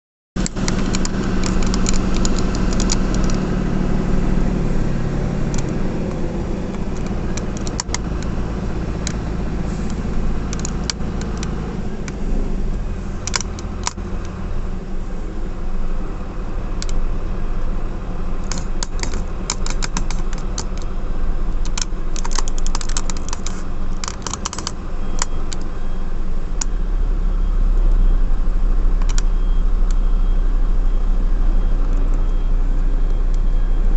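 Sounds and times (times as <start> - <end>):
sharp clicks and rattles: 0.4 - 12.2, 13.2 - 14.4, 16.7 - 17.1, 18.2 - 25.8, 29.0 - 30.0
truck diesel engine running: 0.4 - 33.9.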